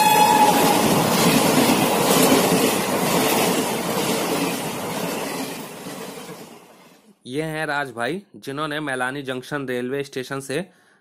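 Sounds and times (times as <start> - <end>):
train horn: 0.0 - 1.0
passenger train rushing past: 0.0 - 7.1.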